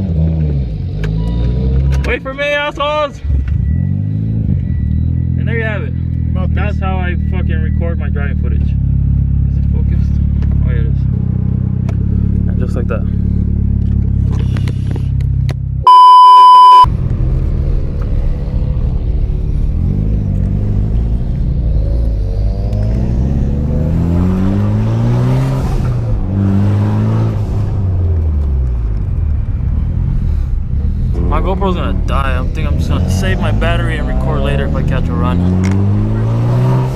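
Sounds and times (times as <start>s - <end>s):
loud steady beep tone: 3.3s - 6.1s, 15.9s - 16.9s
car engine revving: 15.9s - 36.9s.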